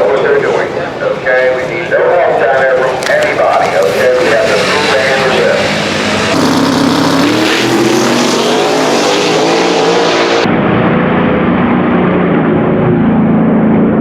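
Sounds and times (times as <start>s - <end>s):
dull engine noise: 0.0s - 14.0s
race car engine accelerating: 3.0s - 14.0s.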